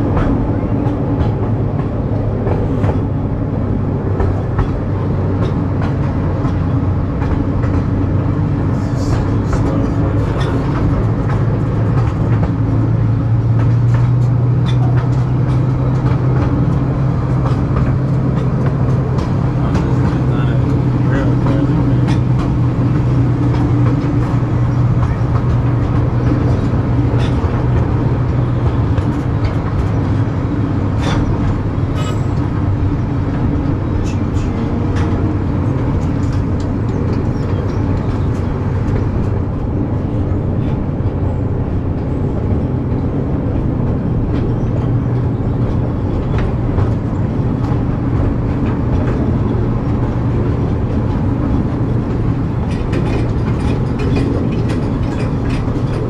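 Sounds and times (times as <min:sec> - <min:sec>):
train cars rolling: 0:00.0 - 0:56.0
train engine humming: 0:00.0 - 0:56.0
sharp clicks and rattles: 0:42.4 - 0:56.0.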